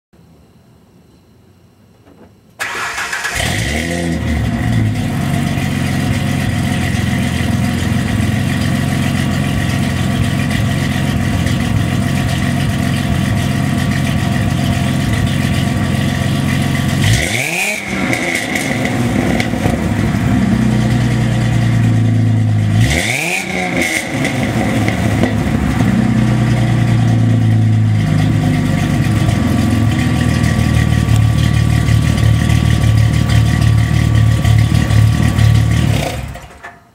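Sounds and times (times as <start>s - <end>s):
supercharger whine: 0.2s - 36.9s
car engine starting and idling: 2.0s - 36.9s
engine revving: 2.6s - 36.6s.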